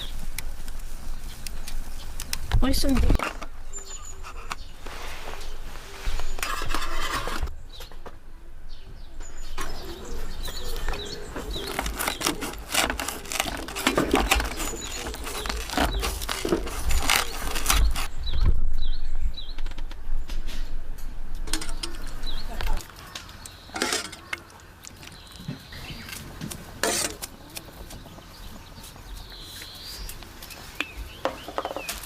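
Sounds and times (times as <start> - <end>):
small birds chirping: 0.0 - 6.8, 7.5 - 20.8, 21.5 - 32.0
objects being handled clattering: 10.6 - 18.1, 21.5 - 28.3.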